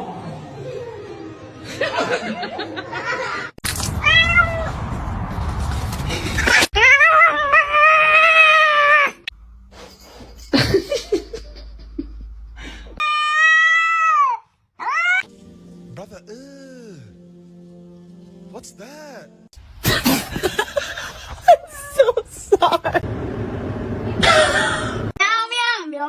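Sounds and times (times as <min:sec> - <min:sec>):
cat meowing: 0:04.0 - 0:04.7, 0:06.8 - 0:09.3, 0:13.0 - 0:15.3.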